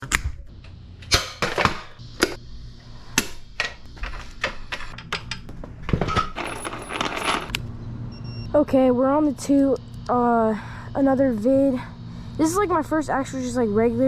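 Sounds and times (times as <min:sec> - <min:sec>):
hard objects clicking and knocking: 0:06.1 - 0:07.6.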